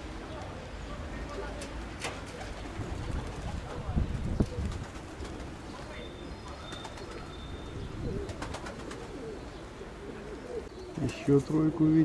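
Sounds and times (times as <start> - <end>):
pigeons cooing: 1.4 - 12.0
wind rumble on microphone: 2.7 - 5.6.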